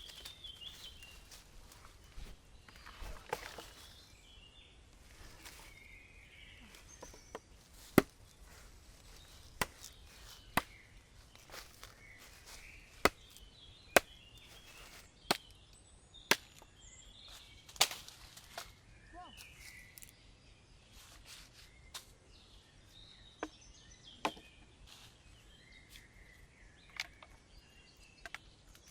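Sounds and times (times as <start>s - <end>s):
wood being chopped: 7.0s - 8.3s, 9.6s - 10.8s, 13.0s - 13.4s, 14.0s - 14.5s, 15.3s - 15.6s, 16.3s - 16.7s.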